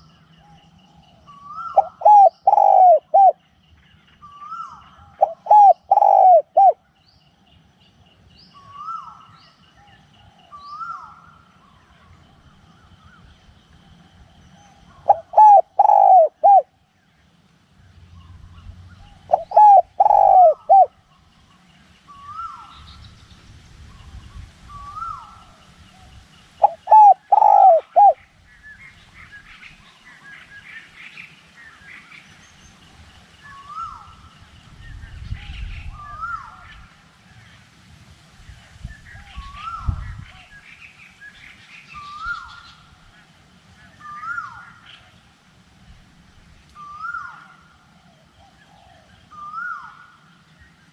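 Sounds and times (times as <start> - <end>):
high bird calls: 0.0 - 7.0, 13.9 - 16.8, 18.2 - 23.2, 23.9 - 32.7
dove cooing: 1.4 - 3.4, 4.4 - 6.8, 14.9 - 16.7, 19.3 - 20.9, 26.6 - 28.2.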